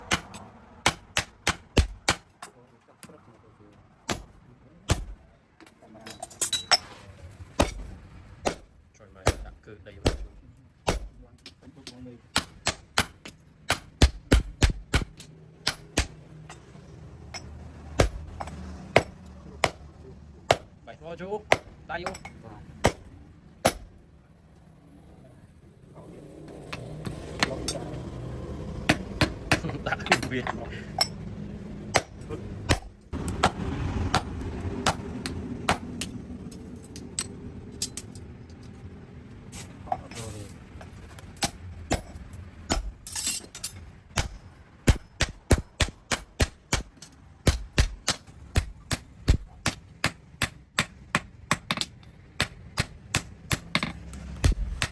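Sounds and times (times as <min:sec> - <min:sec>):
hammer striking steel: 0:00.0 - 0:02.6, 0:04.0 - 0:05.2, 0:07.6 - 0:19.9, 0:21.4 - 0:24.0, 0:28.9 - 0:31.2, 0:31.9 - 0:38.2, 0:40.0 - 0:54.9
low steady rumble: 0:03.5 - 0:54.9.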